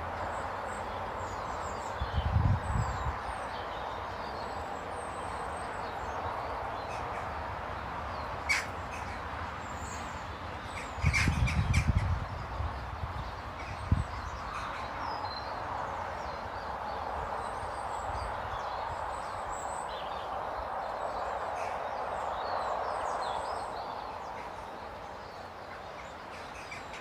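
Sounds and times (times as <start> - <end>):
birds chirping: 0.1 - 27.0
wind on microphone: 1.9 - 3.4, 11.0 - 15.4.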